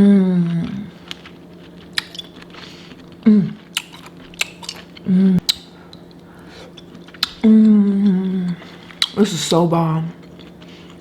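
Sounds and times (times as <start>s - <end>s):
person humming: 0.0s - 1.0s, 3.2s - 3.6s, 5.0s - 5.6s, 7.4s - 8.7s
chewing and smacking: 0.4s - 11.0s.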